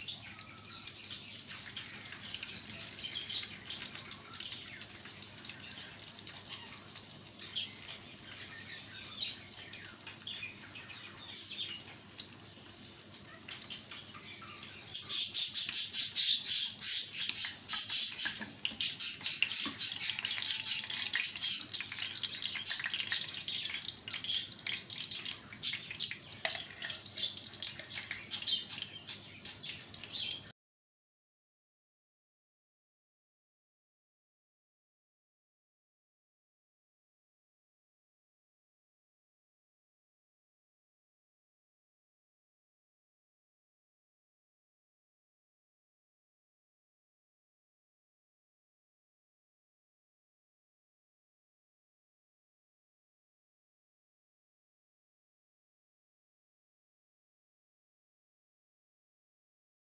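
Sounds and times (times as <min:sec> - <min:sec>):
bread sizzling in hot oil: 0:00.1 - 0:14.1, 0:14.9 - 0:30.1.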